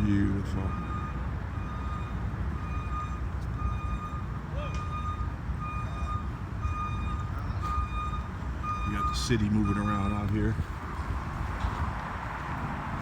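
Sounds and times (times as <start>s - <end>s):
city traffic rumble: 0.0s - 13.0s
reversing alarm beeping: 0.6s - 10.5s.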